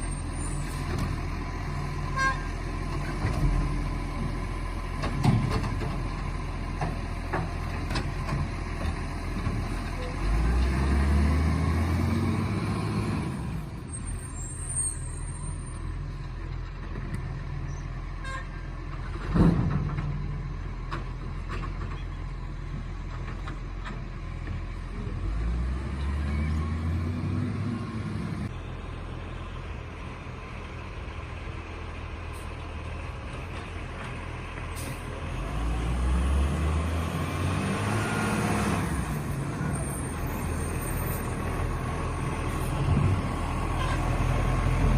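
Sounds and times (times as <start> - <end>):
garbage truck engine revving: 10.2 - 13.5, 35.2 - 44.9.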